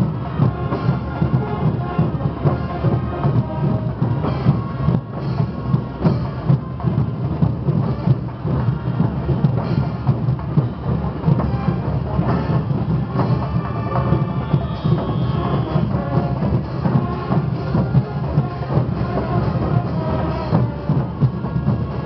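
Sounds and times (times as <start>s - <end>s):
heavy bass drum strokes: 0.0s - 22.0s
rapid percussion beating: 0.0s - 22.0s.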